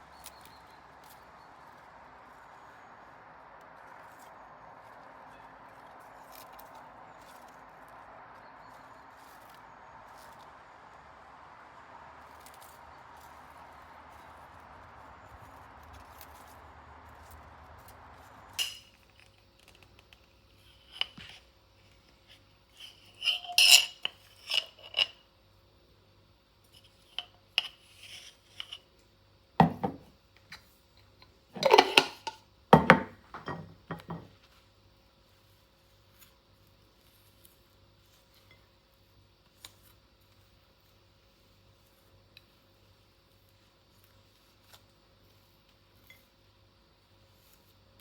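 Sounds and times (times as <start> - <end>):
faint steady hum: 0.0 - 48.0
dishes and cutlery clattering: 18.6 - 18.9, 22.8 - 25.2, 31.6 - 34.3.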